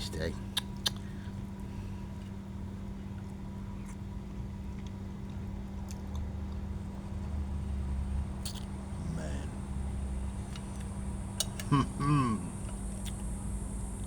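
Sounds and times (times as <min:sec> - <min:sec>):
steady low hum: 0:00.0 - 0:14.0
person chewing food: 0:00.6 - 0:01.3, 0:04.7 - 0:06.7, 0:12.6 - 0:13.3.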